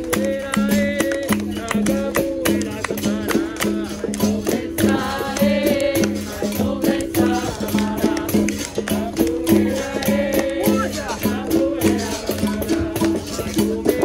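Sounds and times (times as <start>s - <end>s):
call and response singing: 0.0s - 14.0s
hand percussion: 0.0s - 14.0s
shaker rattle: 0.0s - 14.0s.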